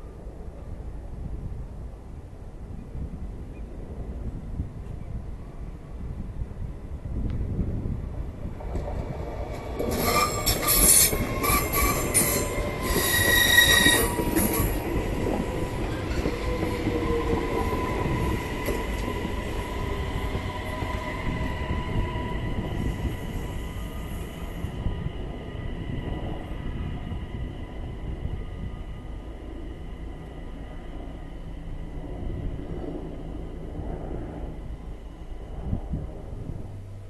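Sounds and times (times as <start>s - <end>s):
train wheels rumbling: 7.4s - 37.0s
metal wheel squealing: 9.8s - 14.8s.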